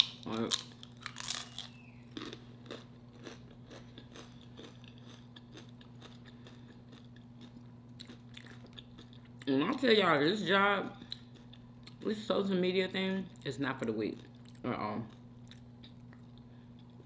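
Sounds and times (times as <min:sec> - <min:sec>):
person chewing crunchy chip: 0:00.0 - 0:09.5, 0:14.1 - 0:17.0
faint steady hum: 0:00.0 - 0:17.0.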